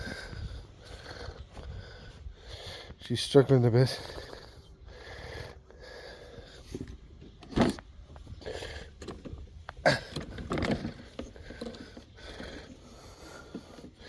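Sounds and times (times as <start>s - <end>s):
handling rattling and scraping: 6.5s - 14.0s.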